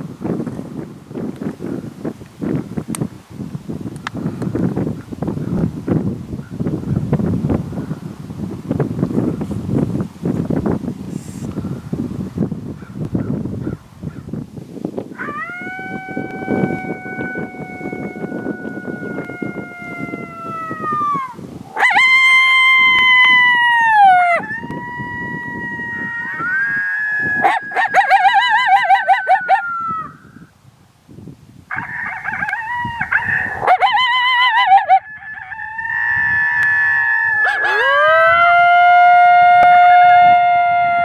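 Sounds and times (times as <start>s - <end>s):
wind noise rumbling: 0.0s - 41.0s
coyote howls on a mouth call: 15.1s - 30.5s, 31.7s - 41.0s.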